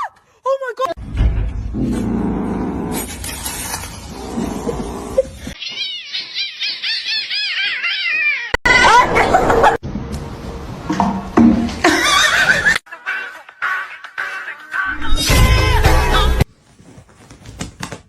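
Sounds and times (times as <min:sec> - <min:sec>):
cat calling: 0:05.6 - 0:08.8.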